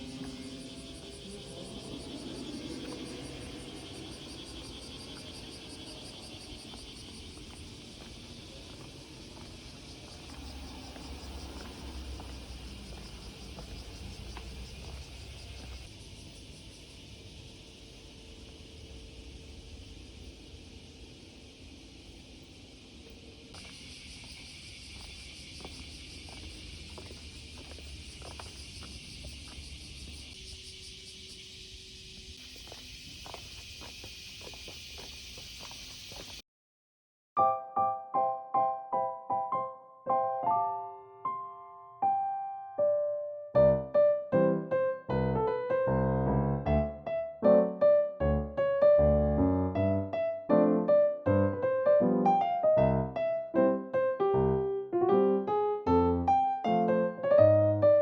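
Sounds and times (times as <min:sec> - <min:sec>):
insects chirping: 0:00.0 - 0:36.4, 0:55.2 - 0:58.0
wind rumble: 0:00.0 - 0:36.4.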